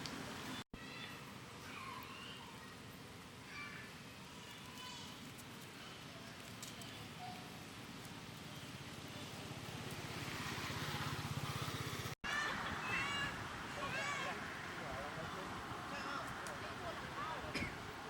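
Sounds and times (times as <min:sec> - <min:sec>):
faint high-pitched cries: 0:00.8 - 0:02.7.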